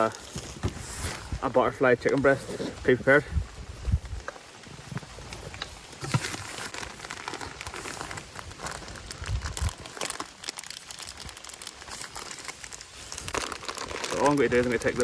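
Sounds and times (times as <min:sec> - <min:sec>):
plastic bag crinkling: 0:05.1 - 0:15.0.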